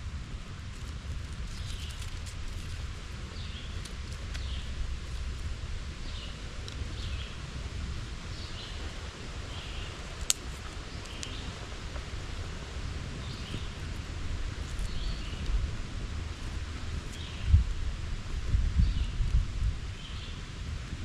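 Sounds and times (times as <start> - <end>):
low steady rumble: 0.0 - 21.0
sharp snap: 10.2 - 10.5.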